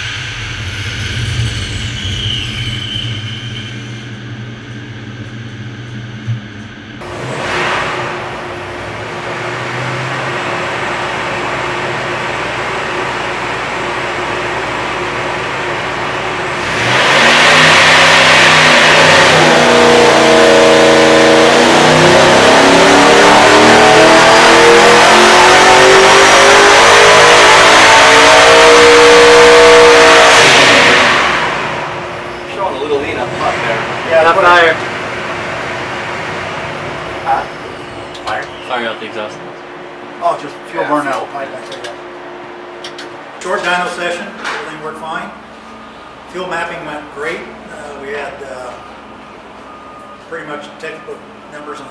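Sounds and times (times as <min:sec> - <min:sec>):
supercharged engine revving on dyno: 0:07.0 - 0:44.2.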